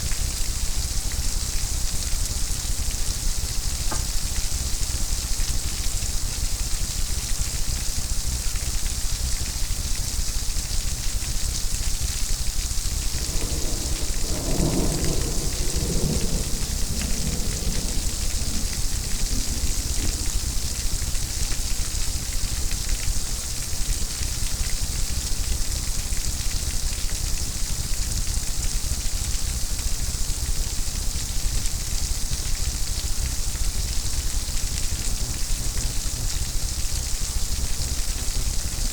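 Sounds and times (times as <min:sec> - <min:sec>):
heavy rain hissing: 0:12.0 - 0:22.2
thunder rumbling: 0:12.6 - 0:21.7.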